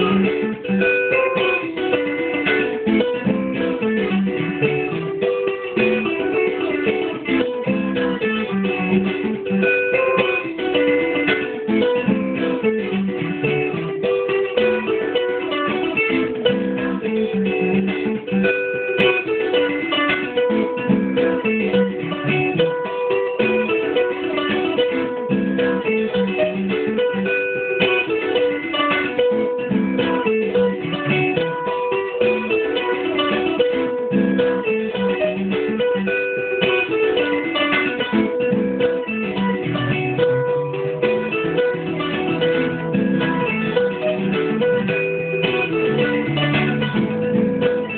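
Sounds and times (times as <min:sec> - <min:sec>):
guitar plucked notes and chords: 0:00.0 - 0:47.9.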